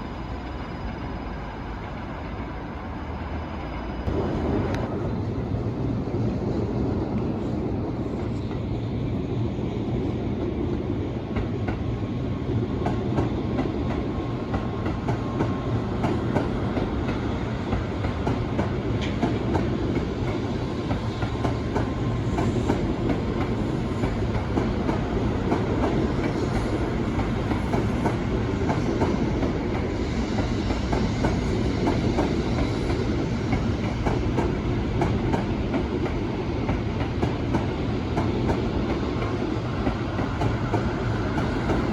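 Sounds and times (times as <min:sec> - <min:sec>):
train rumbling past: 0:00.0 - 0:41.9.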